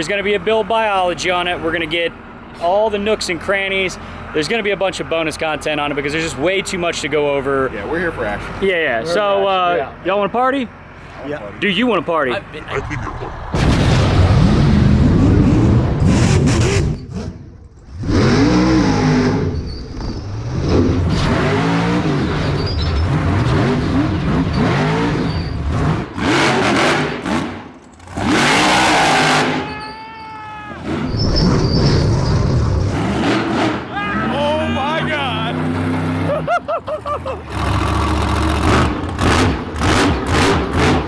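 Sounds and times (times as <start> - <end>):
truck engine revving hard: 10.0 - 29.8, 30.8 - 41.0.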